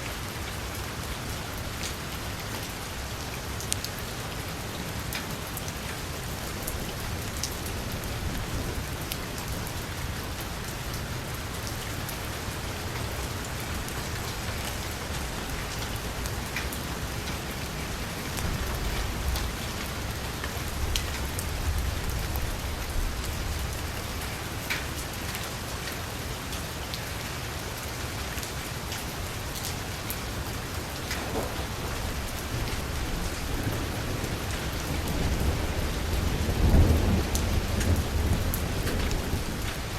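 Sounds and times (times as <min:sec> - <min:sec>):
heavy rain on vehicle roof: 0:00.0 - 0:39.9
thunder rumble: 0:31.2 - 0:39.9.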